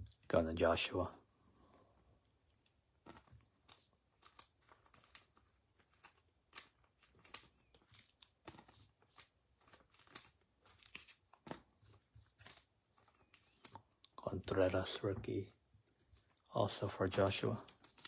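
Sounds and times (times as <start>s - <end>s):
trading cards being handled: 2.6s - 18.0s.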